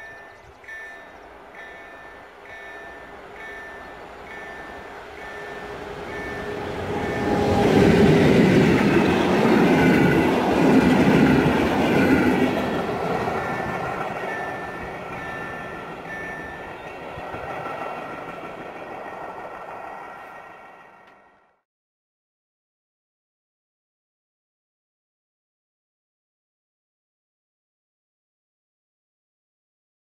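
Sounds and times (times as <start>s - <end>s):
train wheels rumbling on rails: 0.0s - 21.4s.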